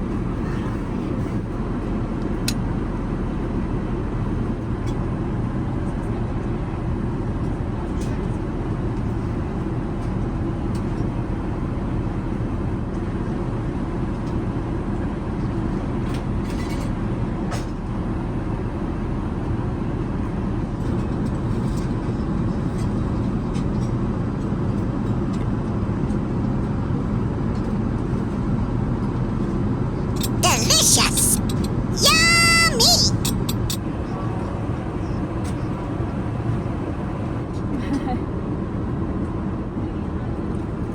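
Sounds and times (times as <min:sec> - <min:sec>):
airplane cabin engine noise: 0:33.2 - 0:38.6.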